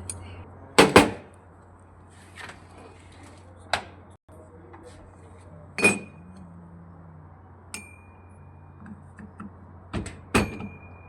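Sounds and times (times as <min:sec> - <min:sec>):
metal-on-metal clinks: 0:05.8 - 0:06.2.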